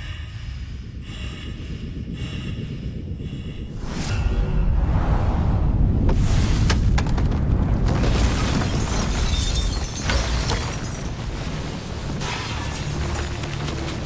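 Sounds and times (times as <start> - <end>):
deep rumbling explosion: 1.8 - 12.1.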